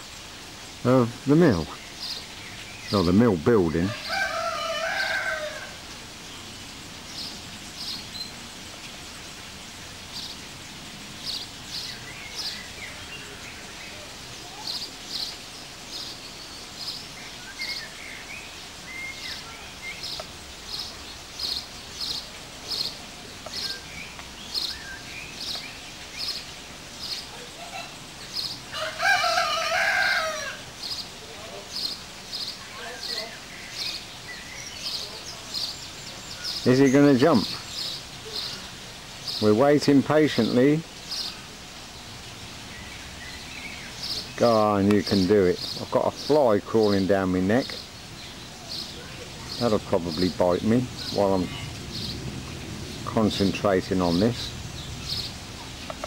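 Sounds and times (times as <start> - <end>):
small bird chirping: 0.0 - 5.6, 6.2 - 28.6, 29.7 - 56.0
birds twittering: 0.0 - 56.0
large fowl drawn-out call: 3.9 - 5.8, 28.7 - 30.7.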